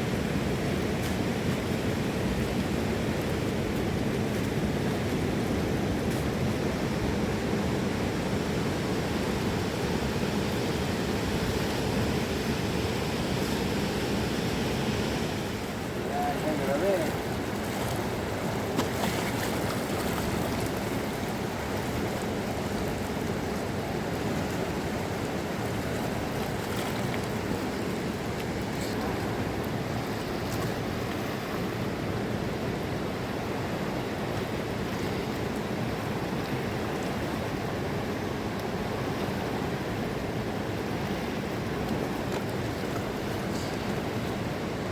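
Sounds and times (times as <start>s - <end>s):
rushing river water: 0.0s - 44.9s.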